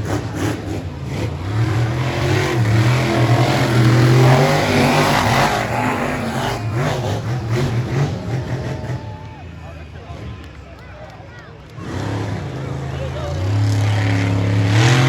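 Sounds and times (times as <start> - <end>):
monster truck engines revving: 0.0 - 15.0.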